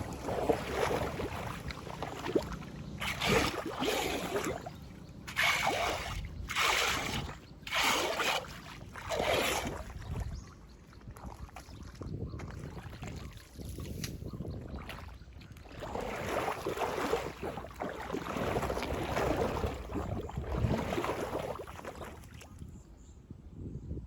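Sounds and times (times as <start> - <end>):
rush of moving water: 0.0 - 10.2, 14.8 - 22.5
water splashing and sloshing: 0.0 - 22.8.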